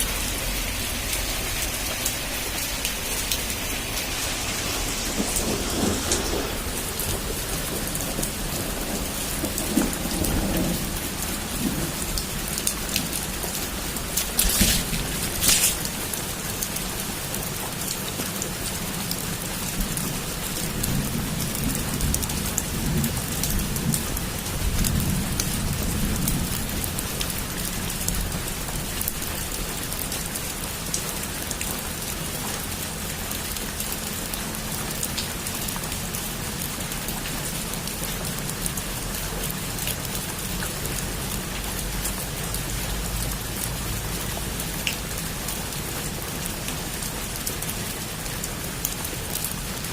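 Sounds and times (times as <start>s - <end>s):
heavy rain: 0.0s - 49.9s
low rumble of thunder: 2.5s - 16.1s, 19.1s - 29.1s.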